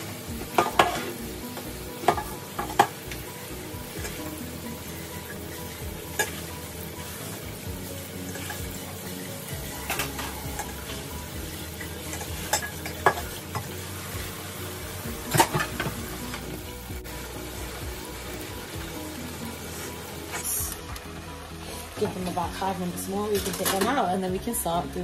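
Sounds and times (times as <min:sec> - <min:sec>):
deep fryer sizzling hiss: 0:00.0 - 0:25.0
steel pot clanking in sink: 0:00.4 - 0:01.1, 0:02.0 - 0:03.0, 0:11.8 - 0:13.7, 0:15.2 - 0:16.4.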